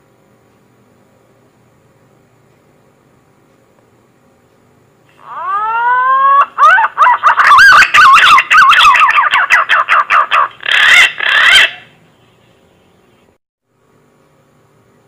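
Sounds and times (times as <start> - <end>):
whistled bird call: 5.2 - 12.6.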